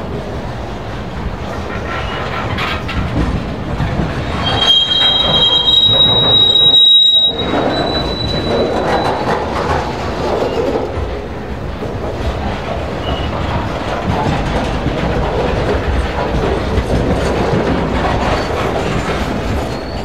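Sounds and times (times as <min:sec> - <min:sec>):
train wheels rumbling and clicking: 0:00.0 - 0:20.0
steel wheels squealing: 0:04.2 - 0:10.7, 0:18.2 - 0:20.0.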